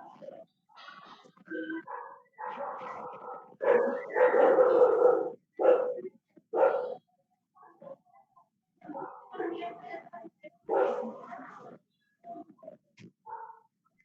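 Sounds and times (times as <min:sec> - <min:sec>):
dog barking: 0:01.8 - 0:07.0, 0:08.8 - 0:09.3, 0:10.7 - 0:11.2, 0:13.3 - 0:13.7.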